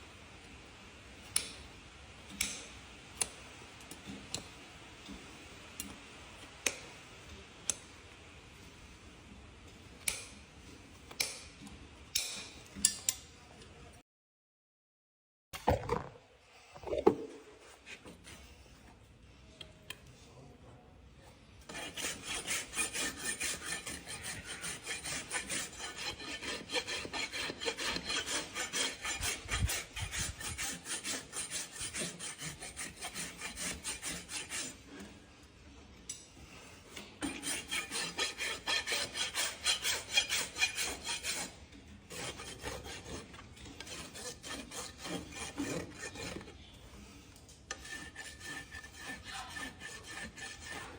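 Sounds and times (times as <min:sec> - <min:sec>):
rasp filing hoof: 0:21.7 - 0:35.2, 0:36.9 - 0:46.6, 0:47.7 - 0:50.9.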